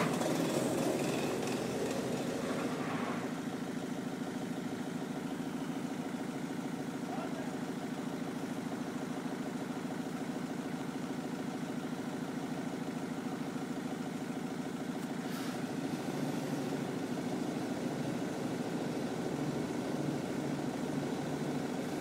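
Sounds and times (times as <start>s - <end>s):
car engine idling: 0.0s - 22.0s
brief hiss: 15.2s - 15.6s.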